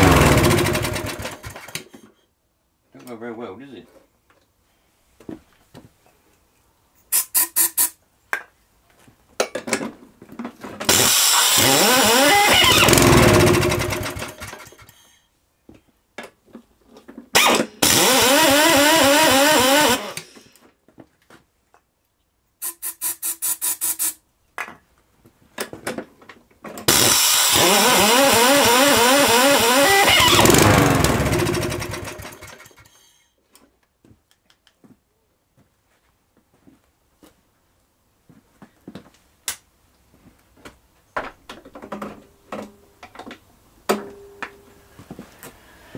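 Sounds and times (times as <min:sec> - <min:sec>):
lawnmower engine sputtering: 0:00.0 - 0:01.7, 0:10.9 - 0:14.9, 0:17.8 - 0:20.2, 0:26.9 - 0:32.9.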